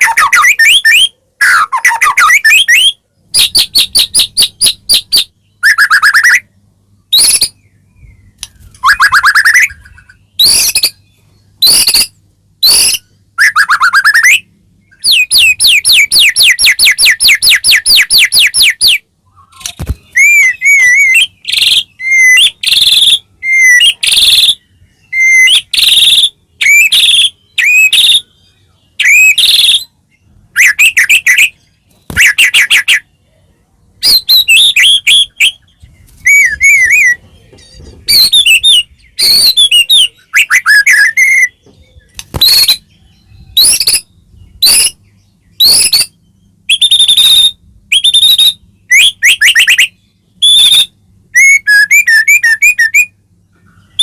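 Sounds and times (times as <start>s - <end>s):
songbird singing trills and whistles: 0.0s - 54.0s.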